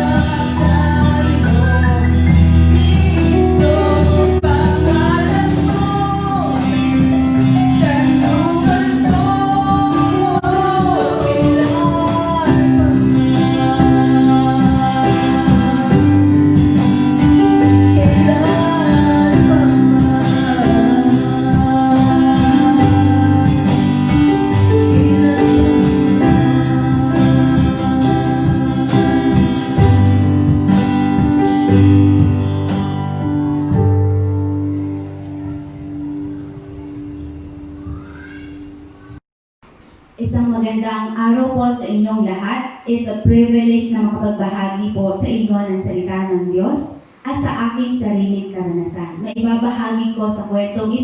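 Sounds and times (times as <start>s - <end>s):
person singing: 0.0s - 32.8s
guitar: 0.0s - 40.4s.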